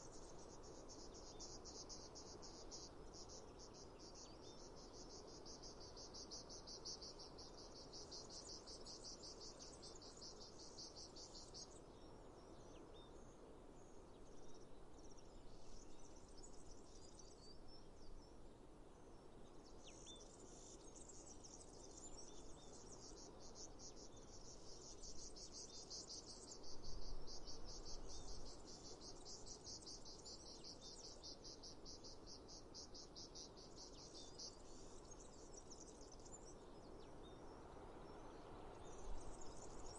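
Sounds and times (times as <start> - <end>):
insects trilling: 0.0 - 11.6, 22.9 - 36.2
faint outdoor noise: 0.0 - 39.9.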